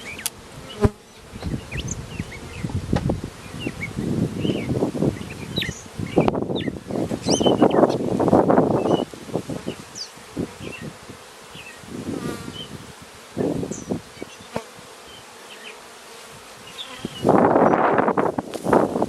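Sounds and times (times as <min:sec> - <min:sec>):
faint birds chirping: 0:00.0 - 0:10.9
bees buzzing: 0:00.0 - 0:19.0.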